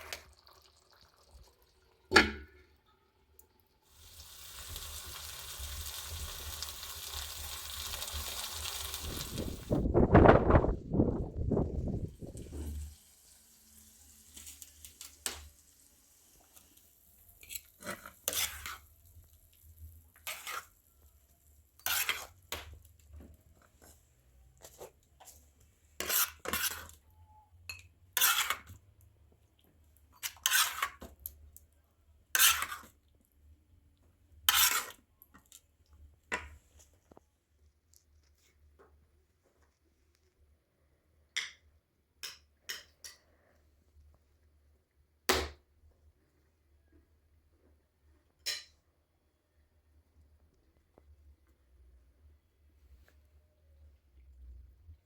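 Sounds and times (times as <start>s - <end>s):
metal utensil scraping a cooking pot: 17.4s - 19.0s, 20.2s - 20.8s, 21.8s - 22.8s, 26.0s - 27.0s, 27.7s - 28.8s, 30.2s - 31.2s, 32.3s - 33.0s, 34.4s - 35.0s.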